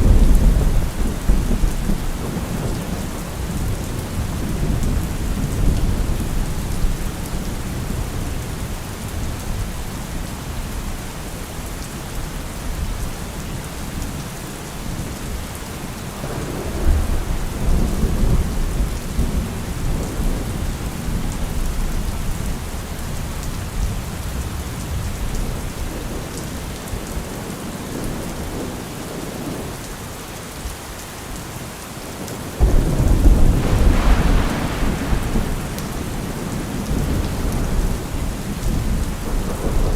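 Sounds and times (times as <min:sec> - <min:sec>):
heavy rain falling: 0:00.0 - 0:39.9
deep rumble: 0:32.6 - 0:37.2.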